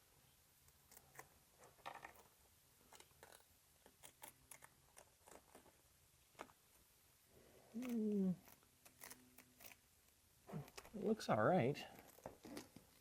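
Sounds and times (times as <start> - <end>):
handling clicks and crinkles: 0.8 - 6.8, 11.8 - 13.0.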